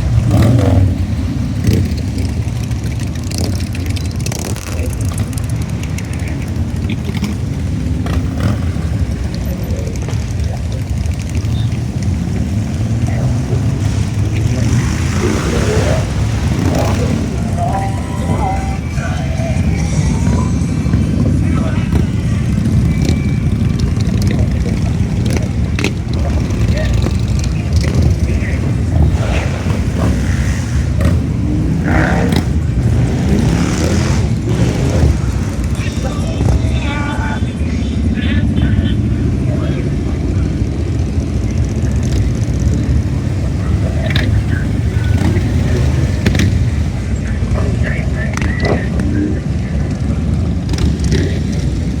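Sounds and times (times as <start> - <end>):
motorcycle engine revving: 0.0 - 52.0
motorcycles rumbling past: 0.0 - 52.0.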